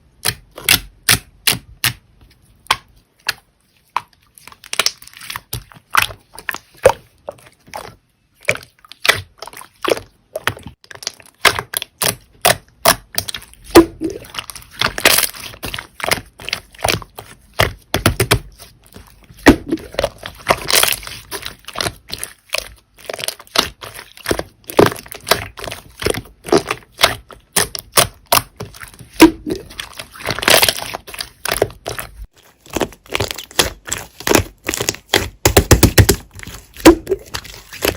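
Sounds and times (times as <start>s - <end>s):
slime clicking and popping: 19.4s - 37.9s.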